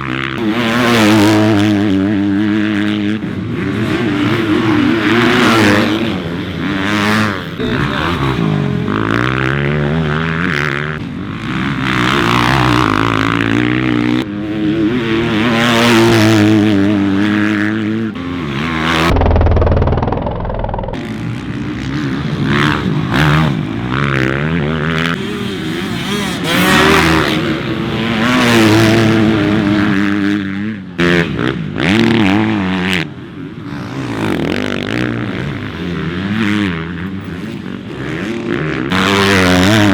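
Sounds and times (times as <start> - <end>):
motocross bike engines revving: 0.0 - 39.9
low rumble: 19.0 - 21.0.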